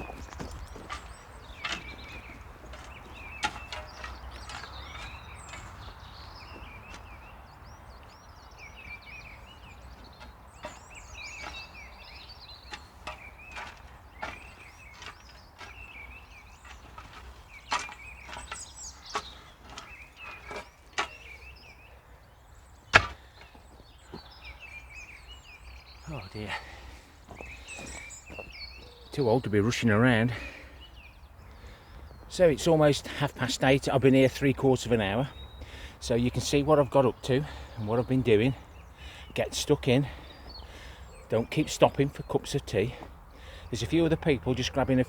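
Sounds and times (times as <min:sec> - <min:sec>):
shovel scraping wood chips: 0:00.0 - 0:07.1, 0:10.6 - 0:21.5
small birds chirping: 0:00.0 - 0:45.0.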